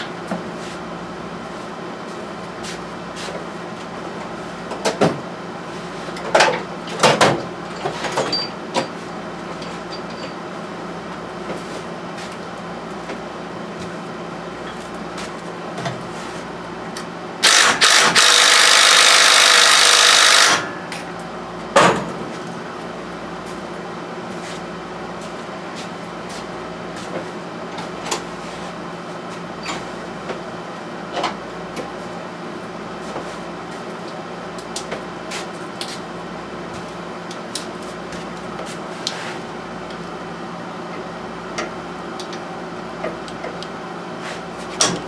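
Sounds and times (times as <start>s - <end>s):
steady background hum: 0.0s - 45.0s
power tool running: 17.4s - 20.8s.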